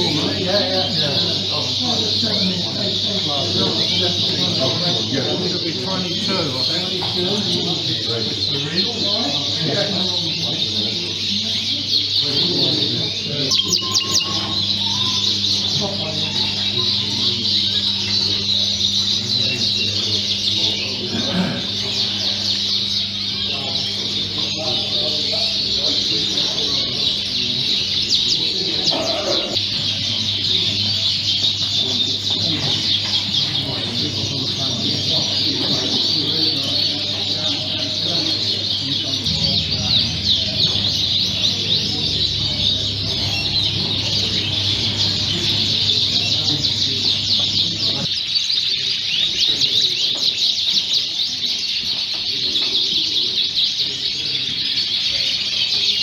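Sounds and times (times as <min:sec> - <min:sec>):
canaries singing and chirping: 0:00.0 - 0:56.0
low background murmur: 0:00.0 - 0:56.0
steady low hum: 0:10.7 - 0:35.8, 0:39.1 - 0:48.1.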